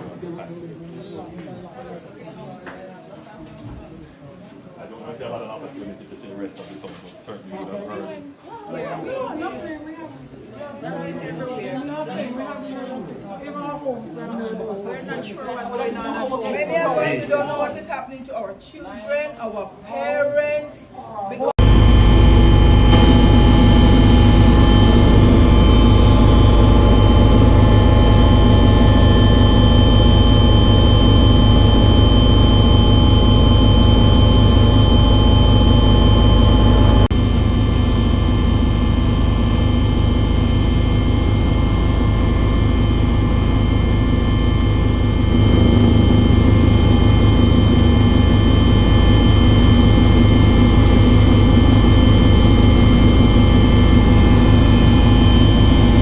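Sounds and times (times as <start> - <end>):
engine drone with whining tones: 21.6 - 56.0.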